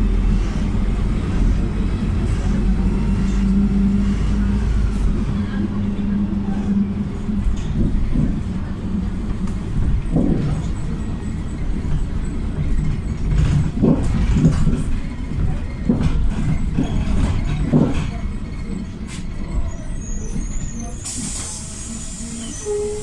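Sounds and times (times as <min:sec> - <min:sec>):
bus engine and road rumble: 0:00.0 - 0:23.0
bus body knocks and rattles: 0:07.6 - 0:11.0, 0:11.6 - 0:19.3.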